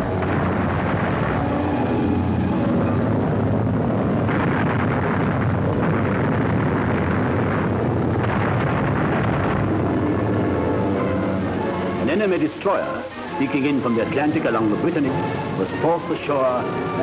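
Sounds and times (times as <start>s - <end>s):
rumbling battle sound effects: 0.0s - 17.0s.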